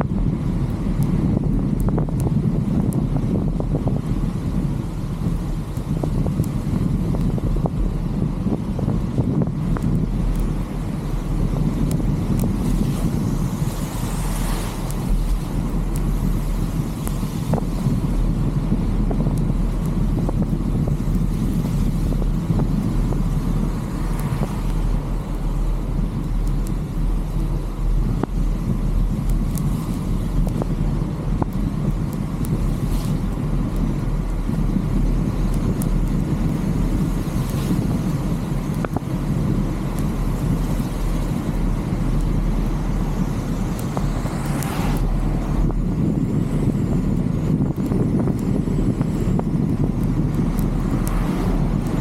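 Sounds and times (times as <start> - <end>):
vehicle and wind rumble: 0.0 - 52.0
faint ticks: 9.7 - 18.3, 24.0 - 30.8, 31.4 - 52.0
faint clicks: 47.6 - 52.0.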